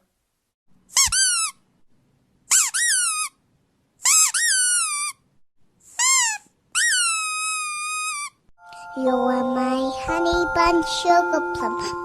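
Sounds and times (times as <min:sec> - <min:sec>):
high-pitched squeaks: 0:05.9 - 0:08.4.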